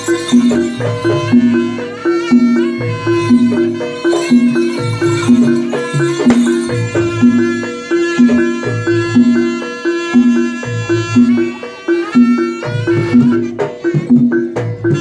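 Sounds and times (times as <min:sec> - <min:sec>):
higher melody line: 0:00.0 - 0:15.0
ringing pitched percussion notes: 0:00.0 - 0:15.0.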